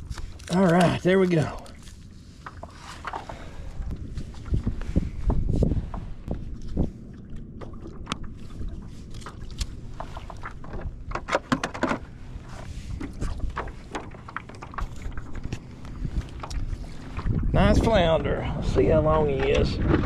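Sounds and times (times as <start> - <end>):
water sloshing against hull: 0.0 - 20.0
wind on microphone: 3.3 - 11.0, 12.2 - 20.0
sharp clicks and knocks: 10.4 - 12.0.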